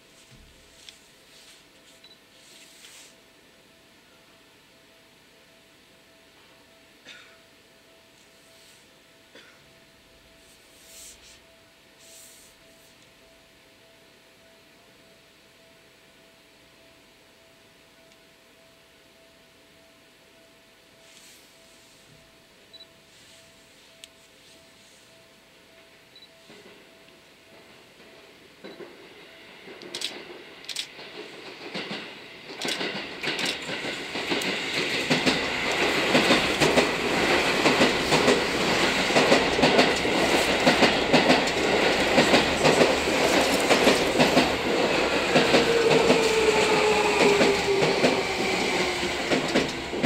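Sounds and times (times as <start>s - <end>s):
electric train passing: 23.2s - 50.0s
train whine falling in pitch: 34.0s - 50.0s.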